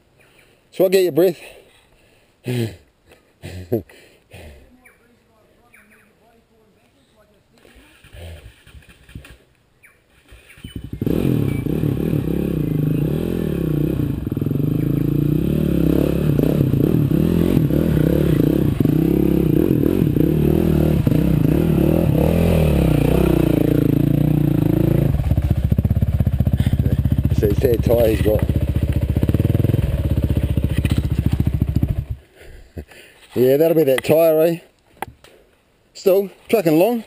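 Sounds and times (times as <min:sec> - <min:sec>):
motorbike engine revving: 0:10.6 - 0:32.2.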